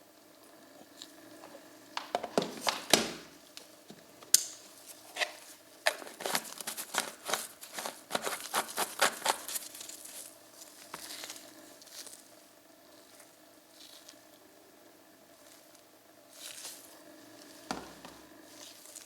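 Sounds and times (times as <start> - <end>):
faint steady hum: 0.0 - 19.0
handling clicks taps and crinkling: 1.0 - 4.6.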